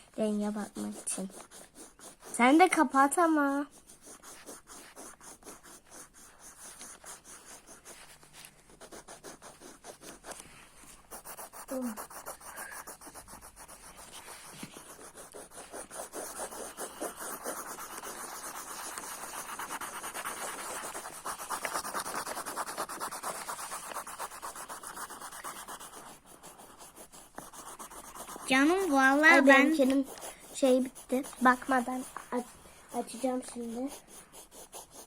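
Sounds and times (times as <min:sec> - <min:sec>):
pens scribbling on paper: 0:00.0 - 0:35.0.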